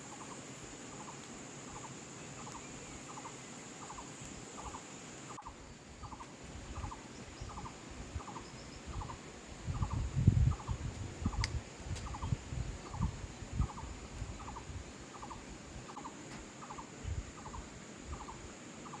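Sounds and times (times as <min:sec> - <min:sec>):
small animal chirping: 0:01.0 - 0:09.2.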